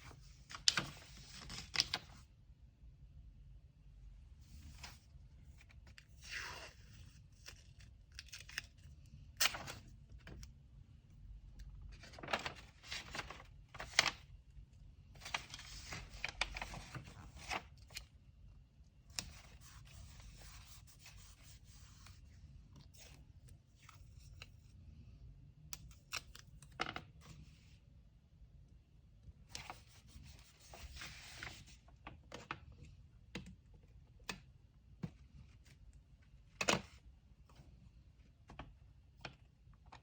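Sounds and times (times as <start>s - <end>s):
paper rustling: 11.9s - 14.3s, 15.2s - 18.0s.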